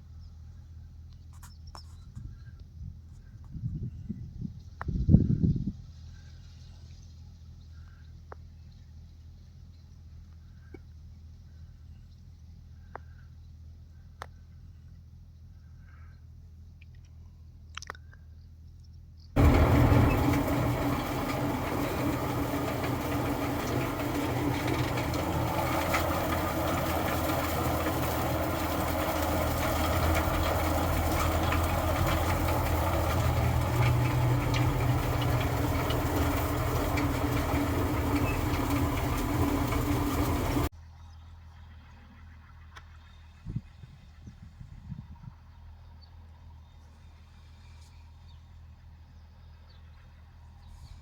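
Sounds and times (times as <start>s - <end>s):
tractor engine running: 19.4s - 40.7s.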